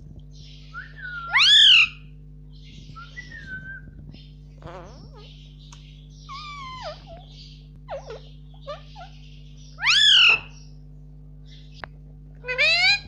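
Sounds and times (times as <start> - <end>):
parrot calling: 0.8 - 2.1, 4.6 - 5.4, 6.2 - 10.7, 12.4 - 13.0.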